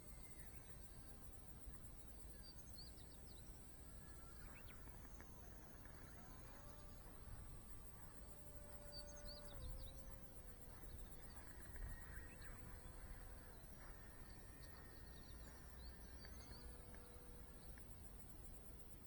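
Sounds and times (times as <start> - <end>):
high insect drone: 0.1 - 19.0
distant model plane motor hum: 4.2 - 18.4.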